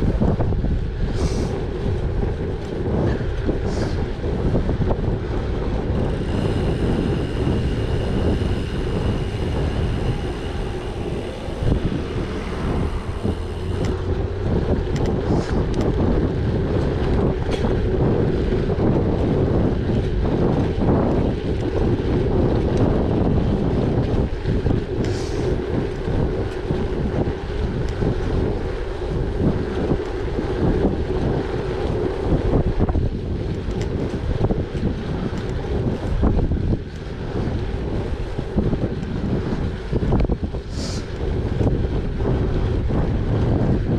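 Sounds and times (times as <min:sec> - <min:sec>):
bike tyres rolling on gravel: 0:00.0 - 0:43.9
wind buffeting microphone: 0:00.0 - 0:43.9
high steady buzz: 0:05.8 - 0:15.8.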